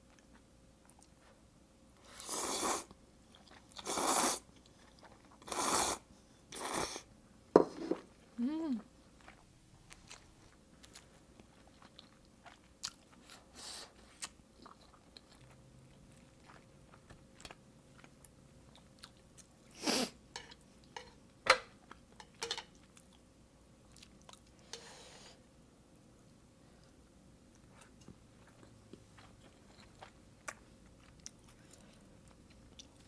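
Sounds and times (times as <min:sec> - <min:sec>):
person chewing food: 0:03.3 - 0:05.6, 0:09.0 - 0:19.7, 0:23.9 - 0:24.8, 0:26.2 - 0:33.0.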